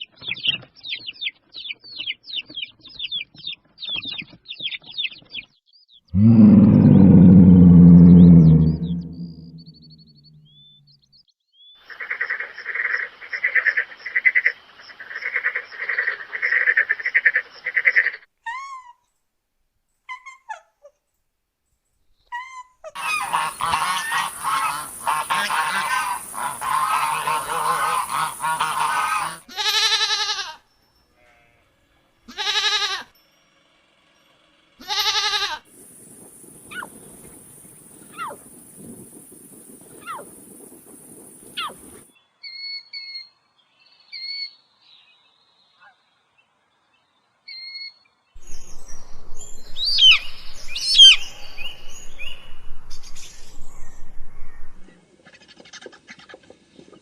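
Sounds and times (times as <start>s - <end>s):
pitched animal calls: 6.1s - 10.5s, 22.3s - 30.5s, 49.8s - 54.9s
long pitched calls: 6.1s - 10.6s, 23.0s - 30.4s, 49.1s - 54.9s
short falling chirps: 6.2s - 10.5s
overlapping animal calls: 23.0s - 30.2s, 38.0s - 38.5s.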